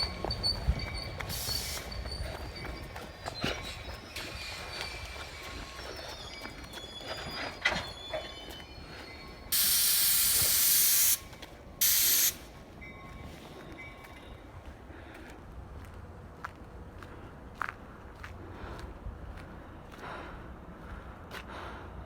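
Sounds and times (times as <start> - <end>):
faint high squeals: 0.0 - 10.7
train clanks: 0.0 - 20.1
train air brakes hissing: 0.6 - 12.7.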